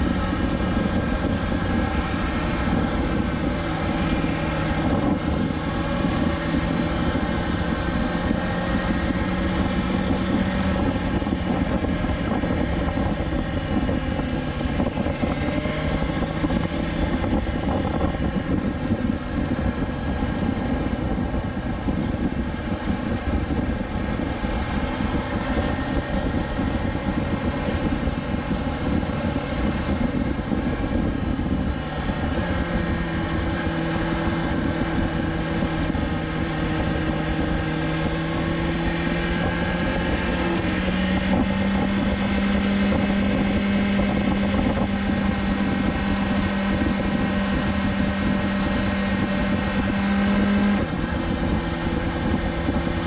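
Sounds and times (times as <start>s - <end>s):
motorcycle engine droning: 0.0s - 53.0s
wind rushing over microphone: 0.0s - 53.0s.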